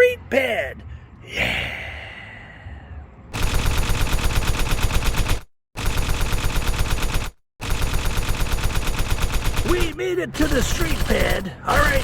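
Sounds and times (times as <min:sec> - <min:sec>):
rapid machine-gun fire: 0:03.4 - 0:12.0.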